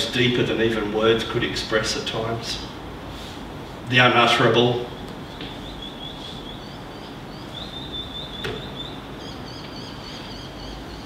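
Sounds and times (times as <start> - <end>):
steady background hiss: 0.0 - 11.0
birds chirping and trilling: 4.3 - 11.0.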